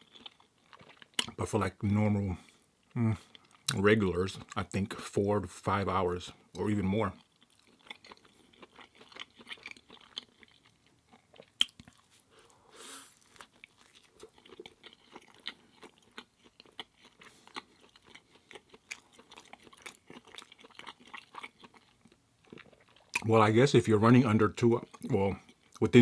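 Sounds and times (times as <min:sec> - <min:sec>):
person chewing food: 0:00.0 - 0:01.4, 0:02.4 - 0:04.6, 0:06.5 - 0:23.3, 0:24.8 - 0:26.0.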